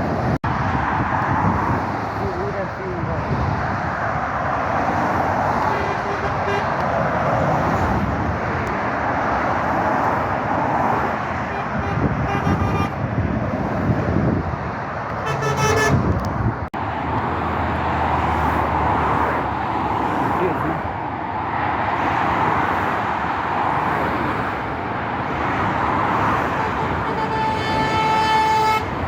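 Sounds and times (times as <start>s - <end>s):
traffic passing on busy road: 0.0s - 29.0s
vehicle horn: 5.6s - 6.8s, 11.5s - 13.0s, 15.1s - 16.2s, 26.5s - 29.0s.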